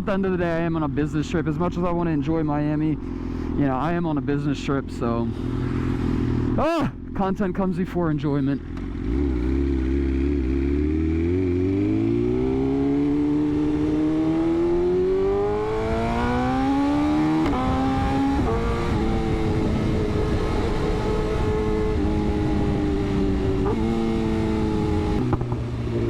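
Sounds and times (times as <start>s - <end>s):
motorcycle engine accelerating: 5.2s - 7.0s, 8.6s - 26.0s.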